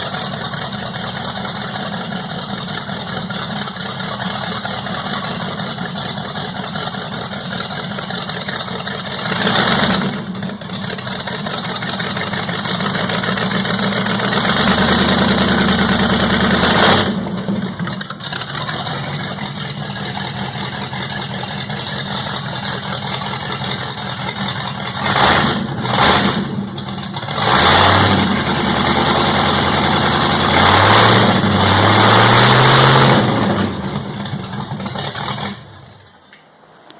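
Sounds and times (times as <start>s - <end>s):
loud car engine revving: 9.0s - 35.9s.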